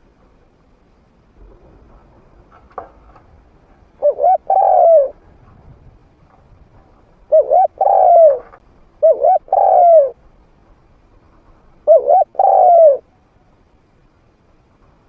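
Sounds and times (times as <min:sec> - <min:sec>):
dove cooing: 0:04.0 - 0:05.3, 0:07.2 - 0:10.2, 0:11.8 - 0:13.1.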